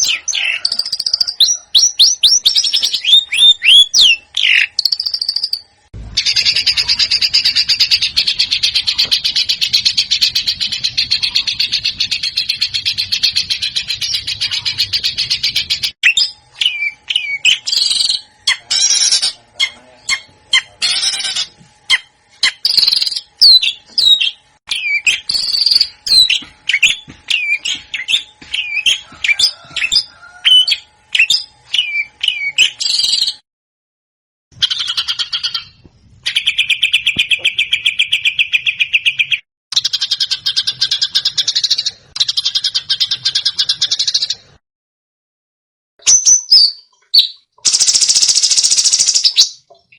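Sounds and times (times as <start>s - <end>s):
songbird whistling and chirping: 0.0s - 5.6s, 6.2s - 19.2s, 20.8s - 33.4s, 34.6s - 44.4s, 46.0s - 49.7s
bird rattling trills: 47.7s - 49.5s.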